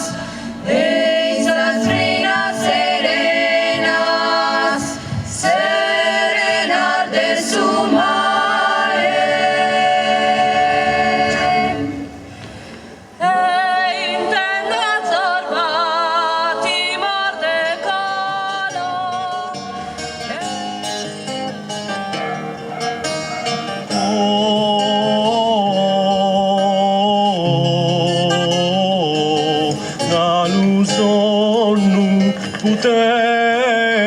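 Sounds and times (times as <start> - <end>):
solo voice singing with vibrato: 0.0 - 12.2, 13.1 - 19.9
voices holding a chord: 0.0 - 12.3.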